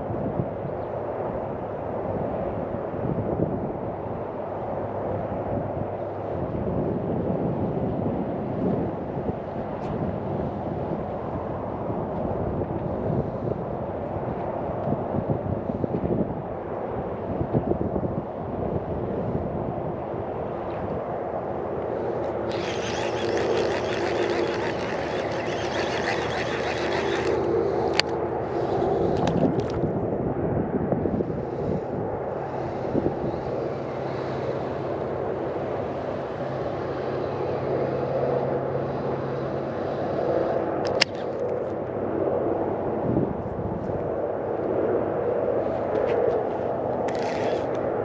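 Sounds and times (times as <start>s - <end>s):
motor running: 21.9s - 29.8s
sharp clicks: 22.5s - 28.2s, 40.9s - 41.4s.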